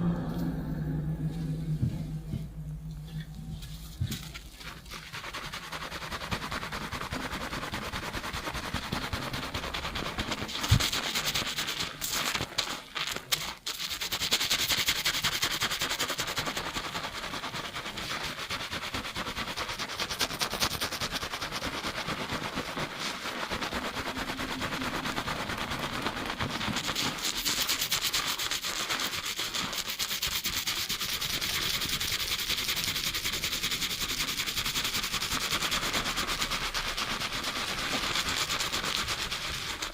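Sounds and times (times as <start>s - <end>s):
fingertips rubbing lathered hair: 3.0s - 39.9s.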